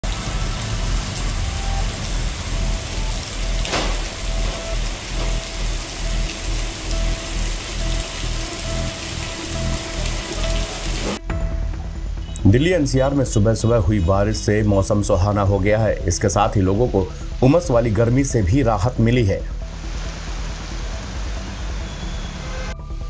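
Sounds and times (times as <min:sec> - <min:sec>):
heavy rain on pavement: 0:00.0 - 0:11.2, 0:19.6 - 0:22.8.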